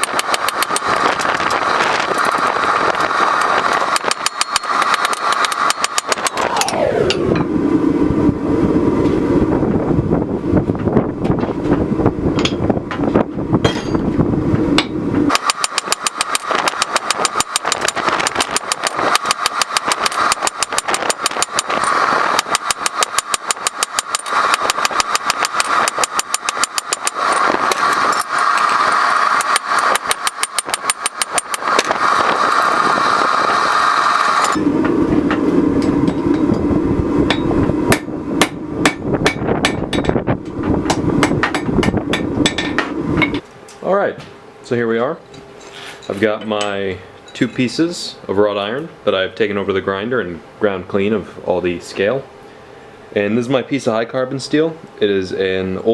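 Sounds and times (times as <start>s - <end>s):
hammer striking hot iron: 0.0s - 7.6s, 12.4s - 13.0s, 13.6s - 14.2s, 14.8s - 31.9s, 37.3s - 43.4s
steady low hum: 0.0s - 55.9s
scattered knocks: 37.3s - 43.4s.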